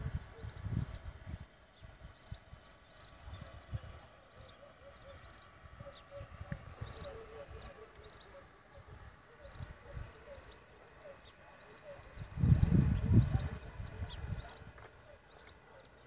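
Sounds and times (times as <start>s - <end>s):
wind buffeting microphone: 0.0s - 4.1s, 12.1s - 15.2s
small birds chirping: 0.0s - 16.0s.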